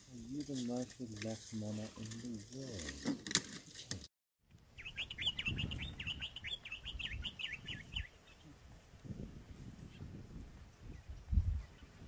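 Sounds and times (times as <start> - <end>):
small birds chirping: 4.7 - 8.6.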